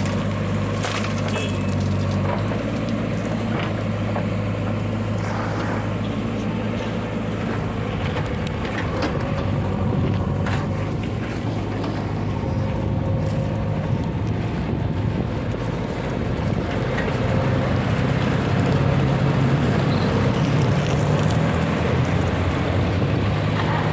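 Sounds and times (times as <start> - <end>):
heavy diesel engine running: 0.0 - 23.9.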